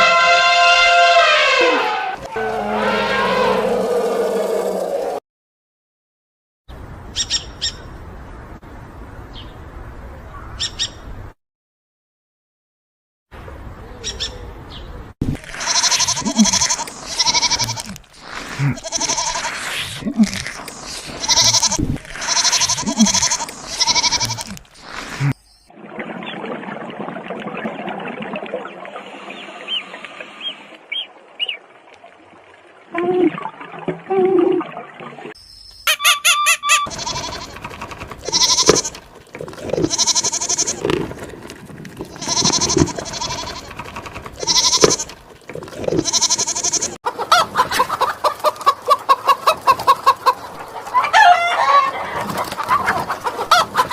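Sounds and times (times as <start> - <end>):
high chirps: 35.4 - 37.0
bird squawking: 35.9 - 37.5
lower animal calls: 35.9 - 37.5
loud pitched animal calls: 35.9 - 37.6.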